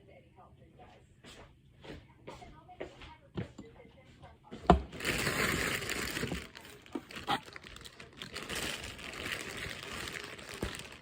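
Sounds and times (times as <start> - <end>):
crinkling and rustling: 4.6 - 11.0.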